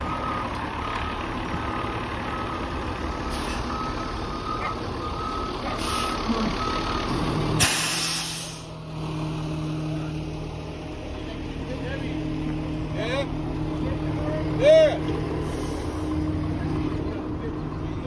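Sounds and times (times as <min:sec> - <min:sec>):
truck engine running: 0:00.0 - 0:18.0
reversing alarm beeping: 0:02.2 - 0:07.2
loud hiss: 0:07.6 - 0:08.7.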